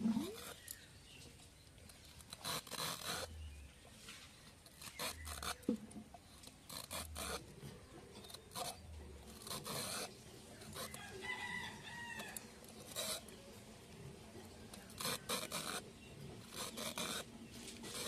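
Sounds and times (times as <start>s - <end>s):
gourd peeler scraping: 0.0s - 0.9s, 1.9s - 13.4s, 14.5s - 18.0s
rooster crowing: 10.8s - 12.5s.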